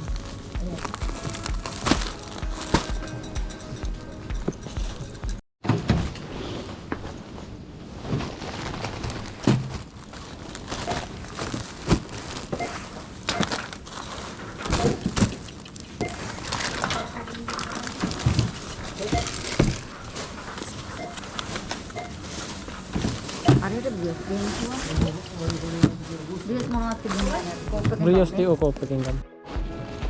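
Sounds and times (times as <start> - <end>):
plastic bags crinkling: 0.0 - 3.1, 8.0 - 27.6.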